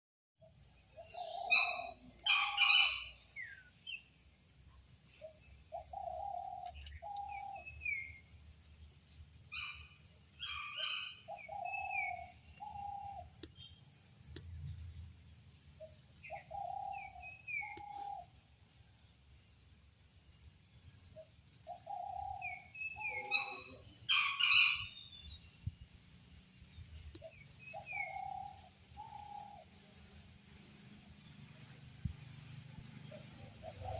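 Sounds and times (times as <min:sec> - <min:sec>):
pulsing insect trill: 0:07.1 - 0:33.9.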